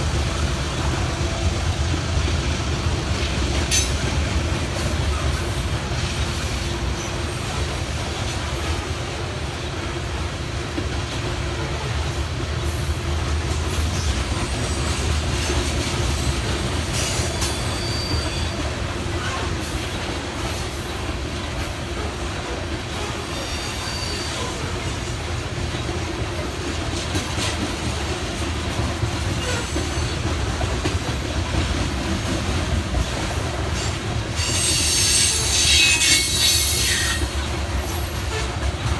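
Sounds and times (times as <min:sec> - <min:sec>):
train wheels rumbling on rail: 0:00.0 - 0:38.9
faint wheel squeal: 0:17.0 - 0:18.6, 0:33.8 - 0:37.4.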